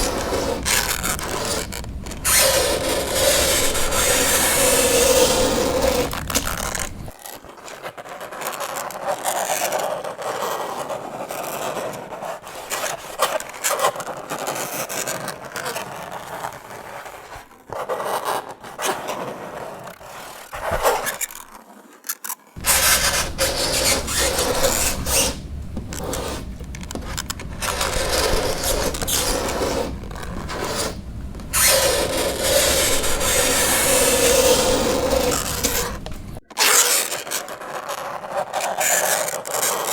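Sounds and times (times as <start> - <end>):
fingernails scraping chalkboard: 0.0 - 7.2, 22.6 - 36.4
pitched squeal: 22.6 - 36.4.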